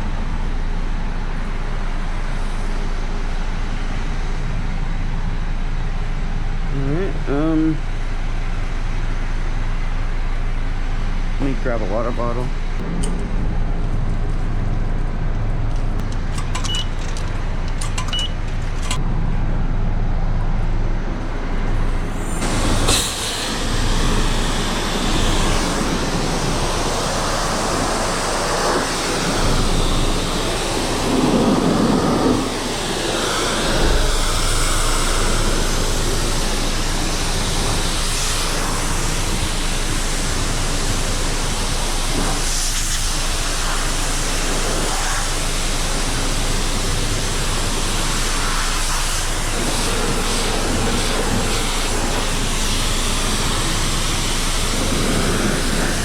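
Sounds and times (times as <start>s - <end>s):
low machine hum: 0.0s - 56.0s
high-pressure water spray hiss: 21.9s - 56.0s.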